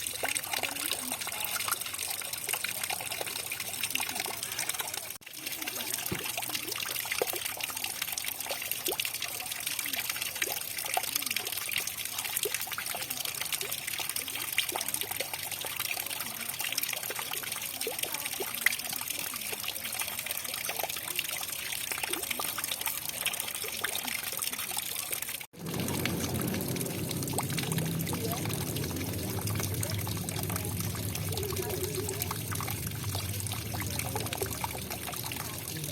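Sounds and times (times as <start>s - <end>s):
water pouring: 0.0s - 35.9s
water trickling: 0.0s - 35.9s
water drops splashing: 20.5s - 35.9s.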